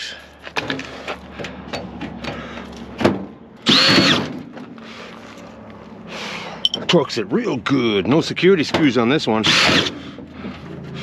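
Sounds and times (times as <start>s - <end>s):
power drill motor whir: 3.6s - 4.4s, 9.4s - 10.0s.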